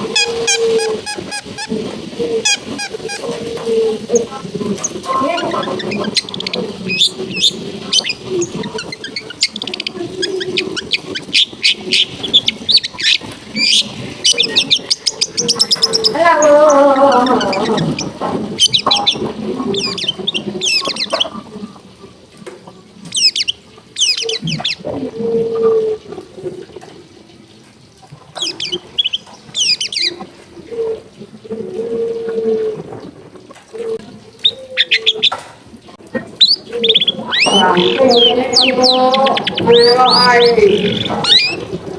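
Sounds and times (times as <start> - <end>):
bird chirps and trills: 0.0 - 1.8, 2.4 - 3.4, 4.0 - 21.4, 23.1 - 24.8, 28.4 - 30.2, 36.4 - 41.8
low drawn-out falling call: 0.0 - 21.3, 36.4 - 41.9
steady background murmur: 36.0 - 41.9.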